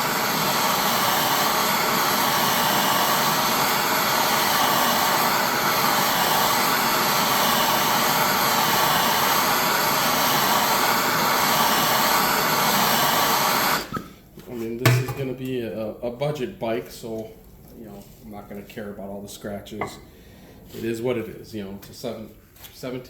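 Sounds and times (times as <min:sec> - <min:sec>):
torch flame hissing: 0:00.0 - 0:14.1.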